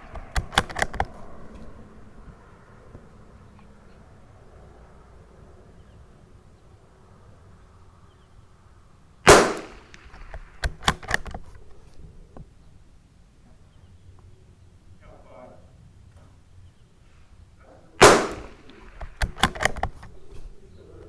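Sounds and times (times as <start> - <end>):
rifle shot: 0.0 - 2.0, 9.3 - 12.0, 18.0 - 20.6
rifle bolt clicking: 0.0 - 2.4, 9.3 - 12.2, 18.0 - 20.7.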